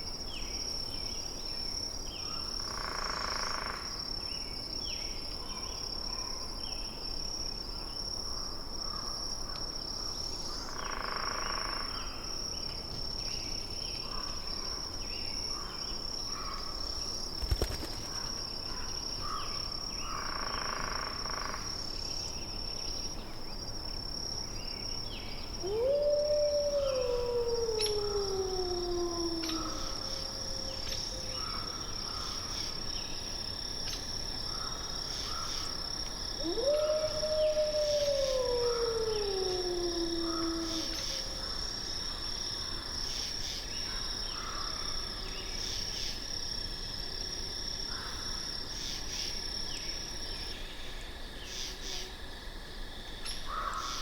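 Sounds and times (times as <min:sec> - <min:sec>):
animal howl: 0:25.6 - 0:31.8, 0:36.4 - 0:41.6.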